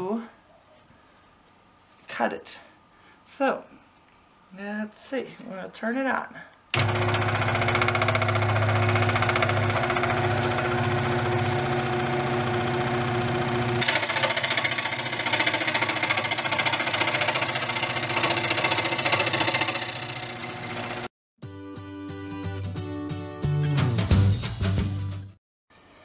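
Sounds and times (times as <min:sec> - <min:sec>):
saw blade cutting plywood: 0:06.8 - 0:21.1
scroll saw running: 0:06.8 - 0:21.1.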